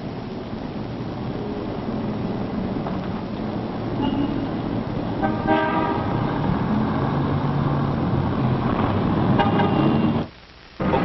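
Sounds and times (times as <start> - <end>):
street traffic: 0.0 - 11.0
car horn: 4.0 - 4.5, 5.2 - 6.1, 9.4 - 10.3.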